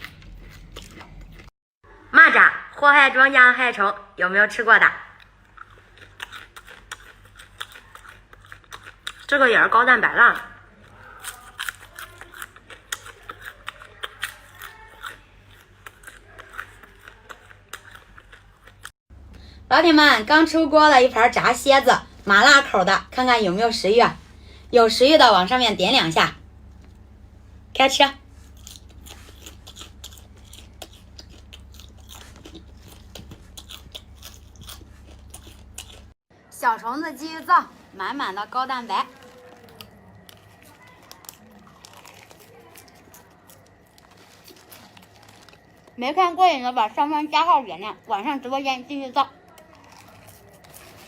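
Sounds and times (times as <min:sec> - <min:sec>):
chewing crunchy food: 0:00.0 - 0:01.5, 0:05.1 - 0:19.0, 0:28.2 - 0:36.2, 0:38.6 - 0:47.3, 0:47.9 - 0:51.0
low steady hum: 0:00.0 - 0:51.0.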